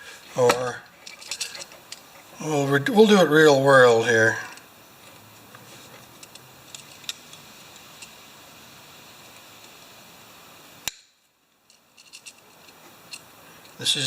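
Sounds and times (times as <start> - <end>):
low steady hiss: 0.0 - 14.0
hand tools and wire clicking: 0.4 - 2.3, 5.9 - 8.2, 10.8 - 13.9.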